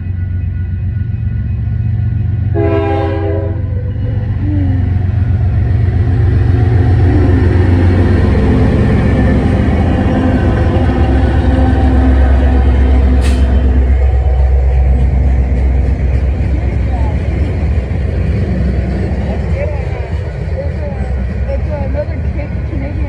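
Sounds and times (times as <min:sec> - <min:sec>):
locomotive engines rumbling: 0:00.0 - 0:23.0
locomotive horn blast: 0:02.5 - 0:04.1.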